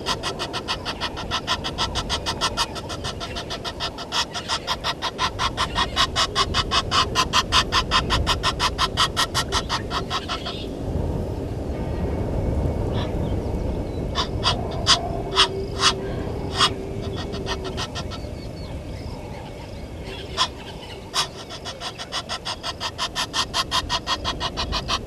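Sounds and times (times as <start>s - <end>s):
low rumble: 9.4s - 21.7s
bird calling sharp notes: 14.2s - 18.7s, 20.1s - 25.0s.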